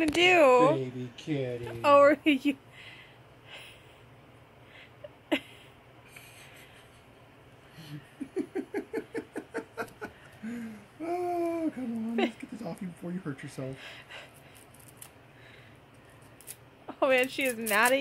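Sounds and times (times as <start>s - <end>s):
woman laughing quietly: 5.0s - 12.7s.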